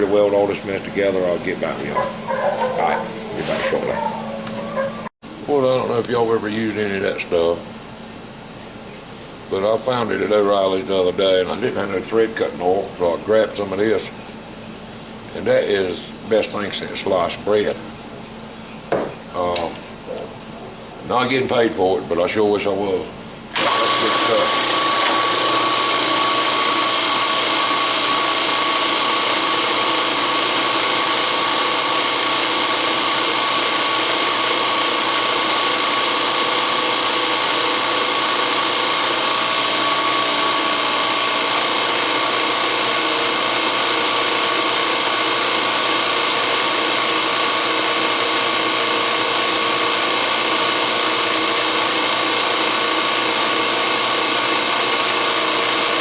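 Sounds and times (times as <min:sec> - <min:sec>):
electric drill boring steel: 0:23.5 - 0:56.0.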